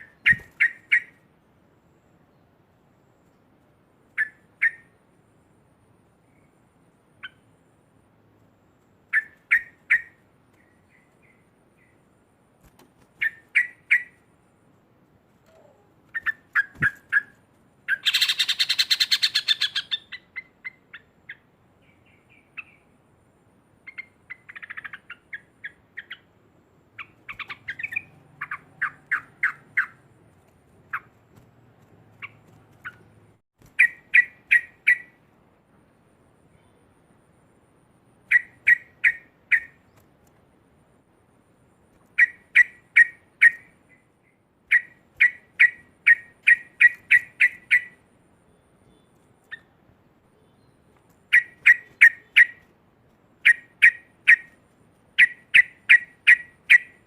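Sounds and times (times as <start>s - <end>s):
harsh bird chattering: 17.9s - 21.1s, 55.2s - 57.0s.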